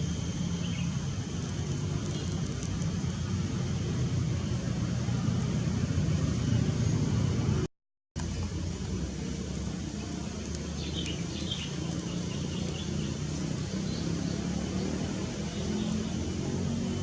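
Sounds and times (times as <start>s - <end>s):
low outdoor rumble: 0.0s - 17.0s
faint high bird chirps: 0.2s - 1.0s.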